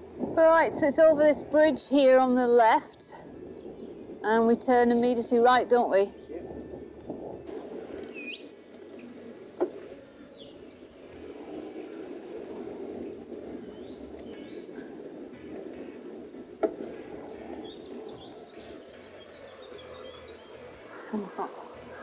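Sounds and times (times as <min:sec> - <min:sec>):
songbirds singing: 0:00.0 - 0:22.0
steady rushing background: 0:00.0 - 0:22.0.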